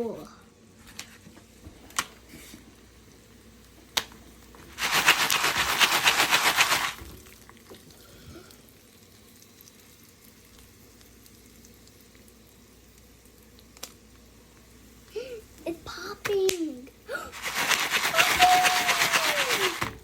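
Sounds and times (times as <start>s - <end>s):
popcorn crackling and sizzling: 0.0s - 20.0s.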